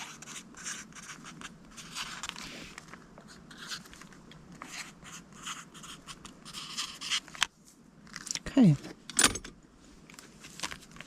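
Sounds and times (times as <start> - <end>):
pen scratching on paper: 0.0 - 2.3, 4.6 - 7.2.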